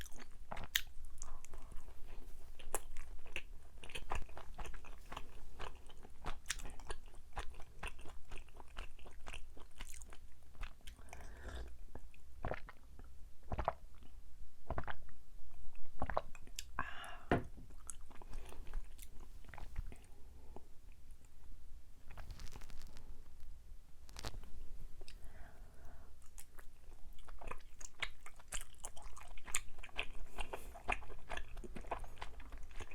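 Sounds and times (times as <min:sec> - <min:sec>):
chewing with sticky mouth clicks: 0:02.6 - 0:11.0, 0:26.2 - 0:32.9.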